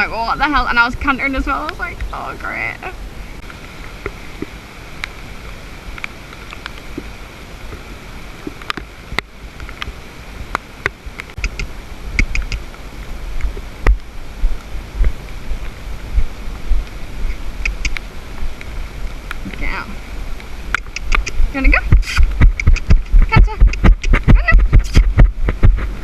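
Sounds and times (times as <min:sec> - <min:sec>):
rain: 0:00.0 - 0:26.0
wind noise on microphone: 0:00.0 - 0:26.0
sharp clicks: 0:10.8 - 0:12.6, 0:17.6 - 0:18.0, 0:20.7 - 0:25.6
low thumps: 0:13.4 - 0:18.0, 0:20.7 - 0:26.0.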